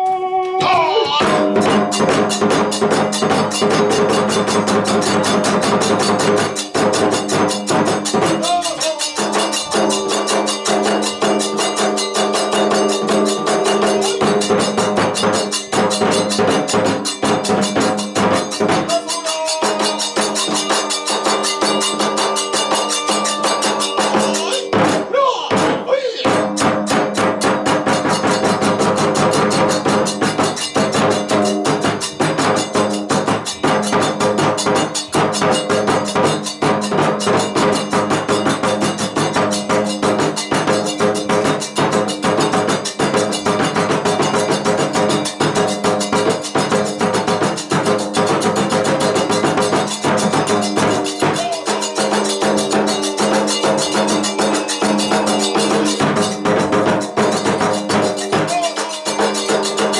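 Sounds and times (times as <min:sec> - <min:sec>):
held flute tones: 0:00.0 - 0:02.8, 0:18.8 - 0:26.2, 0:50.8 - 0:56.5
rapid drum strokes: 0:00.0 - 0:59.9
small hand cymbals clashing: 0:01.5 - 0:25.0, 0:26.5 - 0:59.9.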